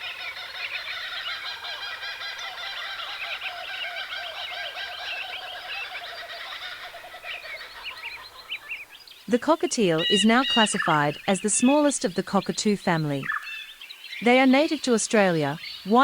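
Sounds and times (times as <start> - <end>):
flock of cockatoos calling: 0.0 - 9.3, 9.9 - 11.9, 12.9 - 14.2.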